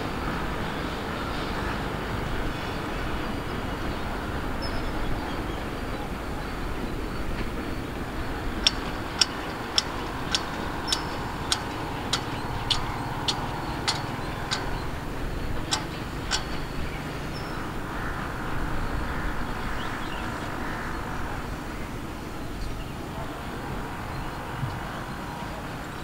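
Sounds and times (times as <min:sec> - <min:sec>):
freight train rumbling: 0:00.0 - 0:26.0
sharp high ticks: 0:08.6 - 0:15.0, 0:15.6 - 0:16.7.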